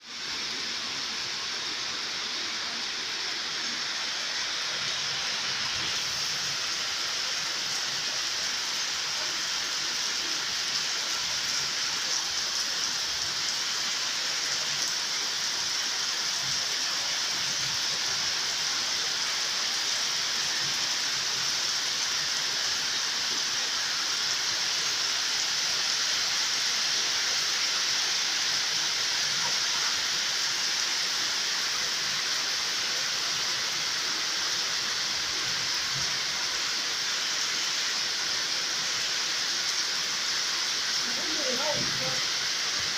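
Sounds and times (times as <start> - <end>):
heavy rain: 0.0 - 42.9.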